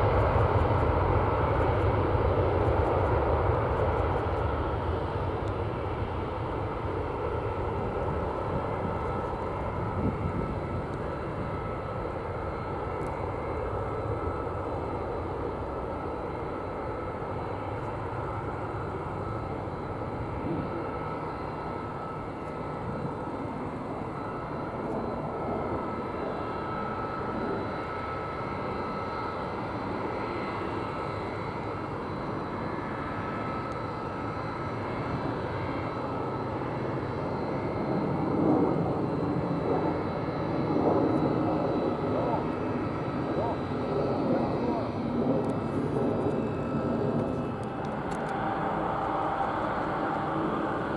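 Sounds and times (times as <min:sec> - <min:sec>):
jet engines running: 0:00.0 - 0:50.9.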